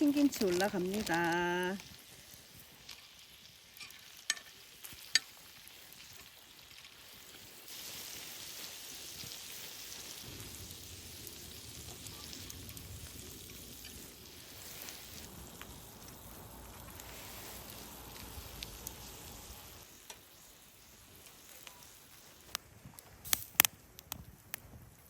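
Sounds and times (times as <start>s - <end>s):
meat sizzling in a frying pan: 0.0s - 22.6s.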